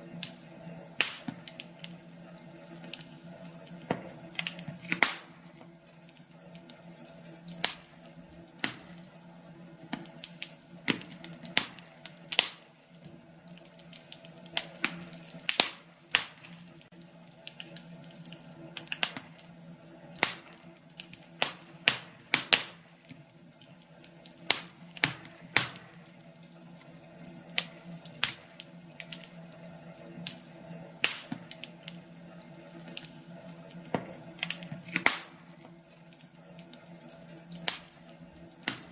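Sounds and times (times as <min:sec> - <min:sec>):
wood fire crackling: 0:00.0 - 0:38.9
sharp pops and snaps: 0:01.0 - 0:02.0, 0:03.7 - 0:09.1, 0:09.8 - 0:19.5, 0:20.2 - 0:23.2, 0:24.0 - 0:26.2, 0:26.8 - 0:29.4, 0:31.0 - 0:32.0, 0:32.8 - 0:38.9.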